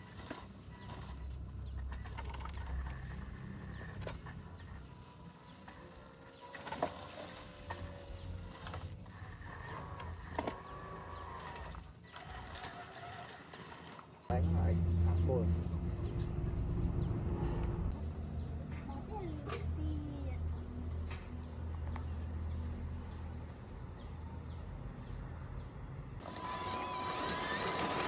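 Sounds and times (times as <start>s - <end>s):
small electric motors and gearing: 0.0s - 16.6s, 26.2s - 28.0s
motor whine: 5.6s - 17.9s, 26.2s - 28.0s.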